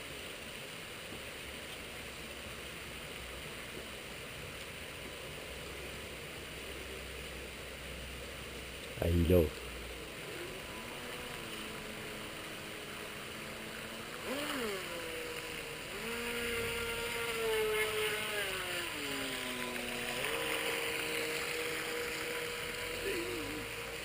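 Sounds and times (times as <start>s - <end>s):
electric motor whining: 10.1s - 24.0s.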